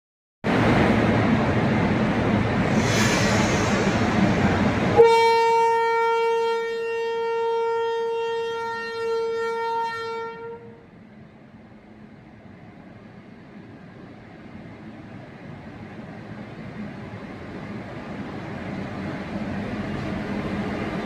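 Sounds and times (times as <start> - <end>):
train running: 0.5 - 21.0
locomotive horn blast: 4.9 - 10.8.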